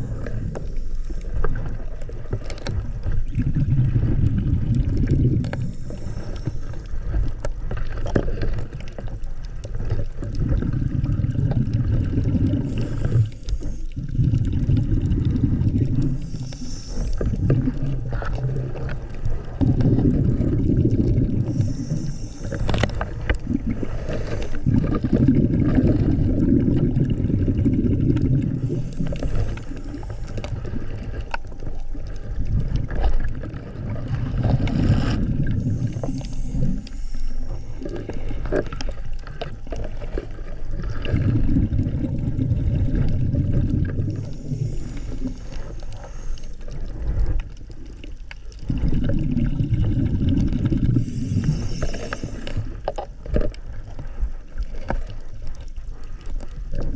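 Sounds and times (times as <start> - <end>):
exhaled bubbles rumbling: 0.0 - 56.9
regulator inhale hiss: 5.5 - 7.2, 12.6 - 14.1, 16.0 - 18.2, 21.3 - 25.0, 28.4 - 31.4, 34.6 - 39.4, 44.0 - 47.2, 50.8 - 52.9.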